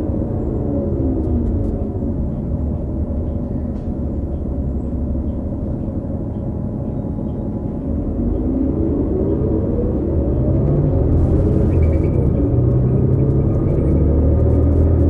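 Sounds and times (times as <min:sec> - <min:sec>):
bus engine rumbling: 0:00.0 - 0:15.0
transmission whine: 0:00.0 - 0:15.0.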